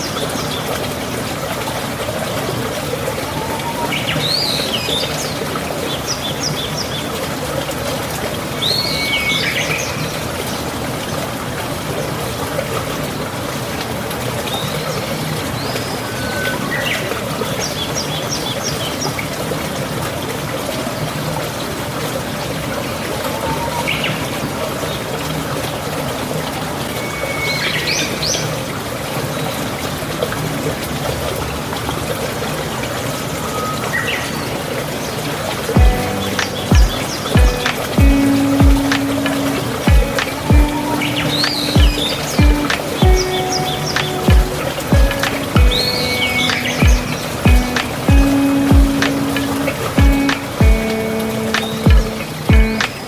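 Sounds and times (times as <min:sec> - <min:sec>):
rushing water: 0:00.0 - 0:53.0
birds chirping: 0:35.8 - 0:53.0.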